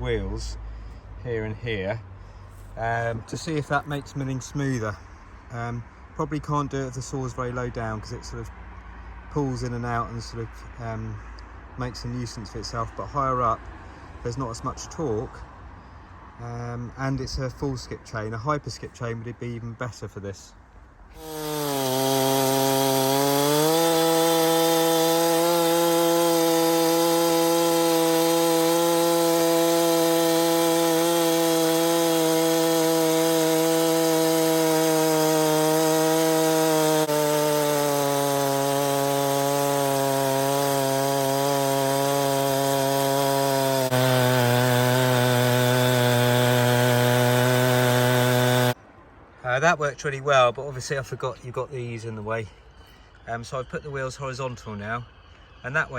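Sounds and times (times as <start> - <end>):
chainsaw cutting a log: 21.2 - 48.8.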